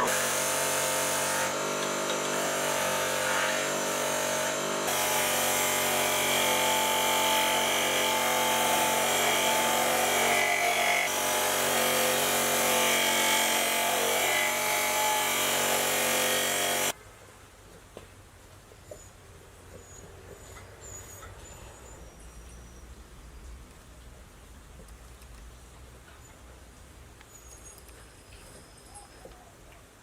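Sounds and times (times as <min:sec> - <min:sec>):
power tool working on metal: 0:00.0 - 0:17.0.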